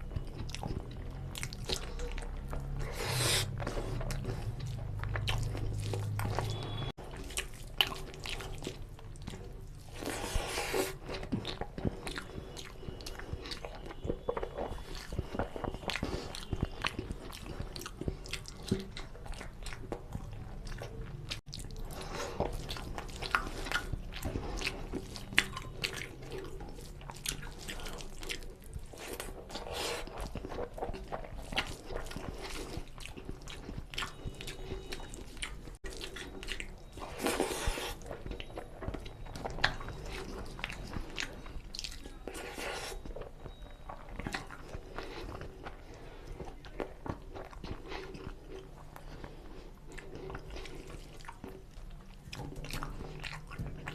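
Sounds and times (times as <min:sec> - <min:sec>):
person chewing with wet mouth sounds: 0:00.0 - 0:53.9.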